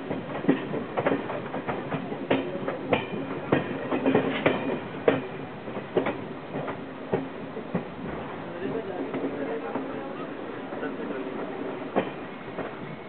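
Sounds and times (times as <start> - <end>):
wheels knocking and rattling: 0.0 - 7.9
train rumble from inside carriage: 0.0 - 13.0.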